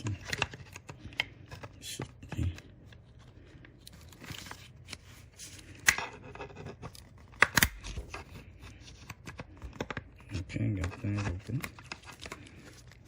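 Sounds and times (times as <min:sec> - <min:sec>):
plastic scraping and creaking: 0:00.0 - 0:13.0
sharp plastic snaps: 0:07.3 - 0:08.2.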